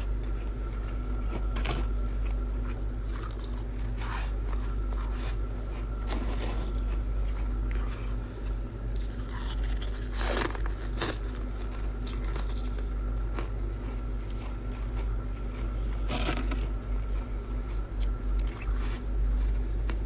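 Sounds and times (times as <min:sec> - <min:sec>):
steady low hum: 0:00.0 - 0:20.0
ice being crunched by teeth: 0:03.0 - 0:05.4, 0:09.0 - 0:13.6, 0:14.3 - 0:16.8.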